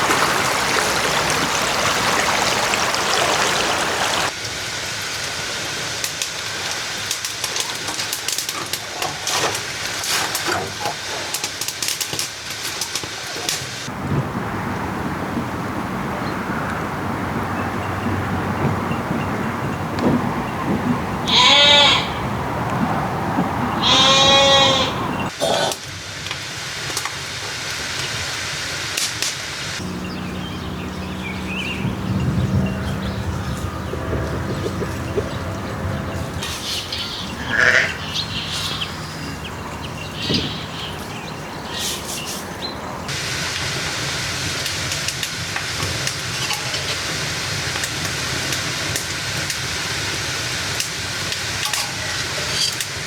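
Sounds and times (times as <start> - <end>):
birds chirping: 0.0 - 13.9, 23.1 - 53.0
steady hiss: 0.0 - 14.0, 25.2 - 29.8, 43.1 - 53.0
sharp crackles: 4.3 - 13.9, 43.1 - 53.0
dough sizzling in hot oil: 43.1 - 53.0.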